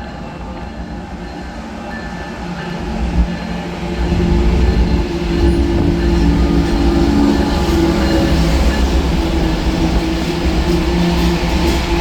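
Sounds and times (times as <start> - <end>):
diesel train passing: 0.0 - 12.0.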